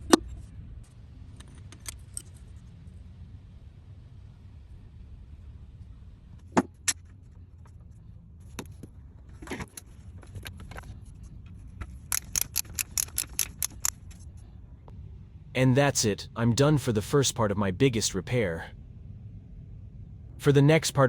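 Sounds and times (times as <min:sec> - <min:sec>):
low steady hum: 0:00.0 - 0:21.0
metallic clicks of tools: 0:12.1 - 0:14.2.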